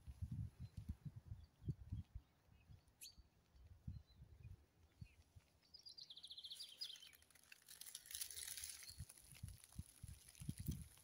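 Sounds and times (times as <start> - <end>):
faint songbird calls: 0.6 - 7.2.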